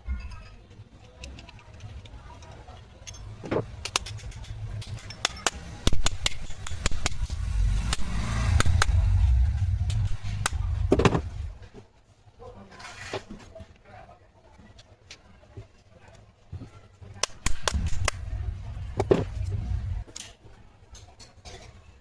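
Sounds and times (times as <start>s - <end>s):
metal tool clicks and knocks: 0.2s - 7.3s
low rumble: 7.3s - 11.6s, 17.5s - 20.2s.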